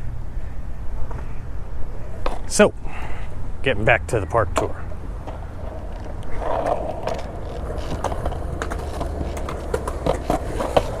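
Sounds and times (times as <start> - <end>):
skateboard wheels rolling on concrete: 0.0 - 11.0
skateboard clicks over seams: 5.2 - 11.0.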